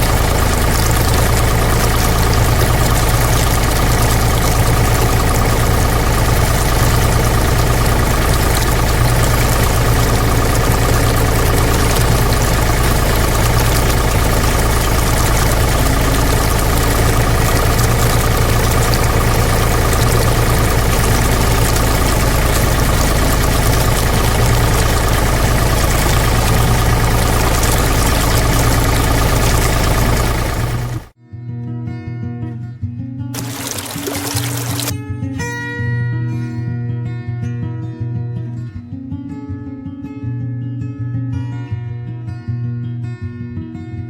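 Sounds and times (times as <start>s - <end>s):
small engine running: 0.0s - 31.1s, 33.4s - 34.9s.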